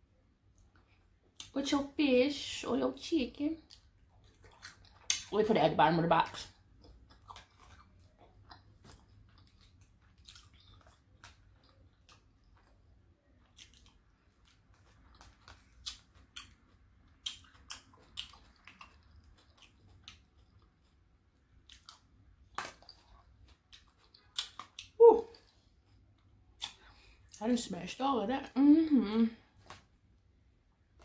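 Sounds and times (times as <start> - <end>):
person chewing: 3.7 - 5.4, 6.3 - 27.4.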